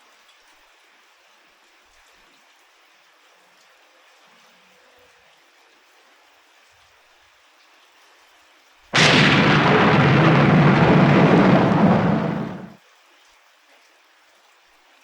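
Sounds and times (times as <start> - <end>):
faint steady rain: 0.0 - 15.0
thunderclap rumbling: 9.0 - 12.8.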